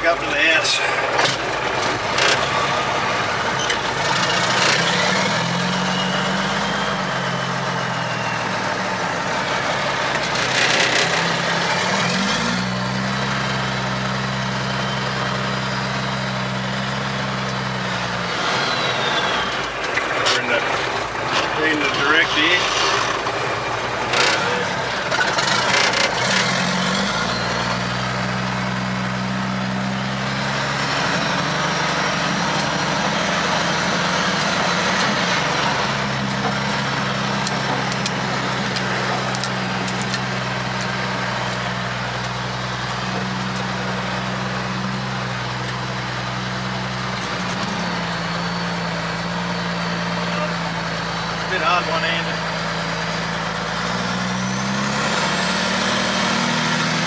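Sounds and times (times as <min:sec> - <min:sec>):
truck diesel engine running: 0:00.0 - 0:57.0
clicks: 0:31.0 - 0:45.8.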